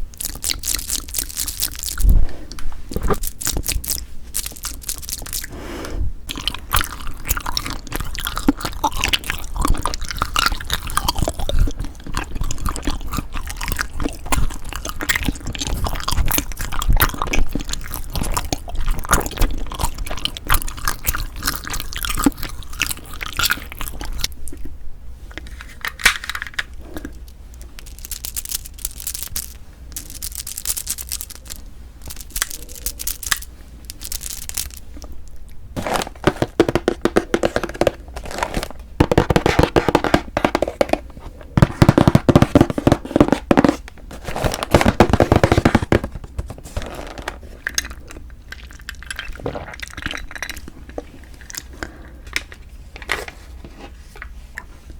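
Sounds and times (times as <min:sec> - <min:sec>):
rice cake crackling while eaten: 0:00.1 - 0:02.1, 0:02.9 - 0:05.6, 0:06.3 - 0:24.7, 0:26.8 - 0:35.2.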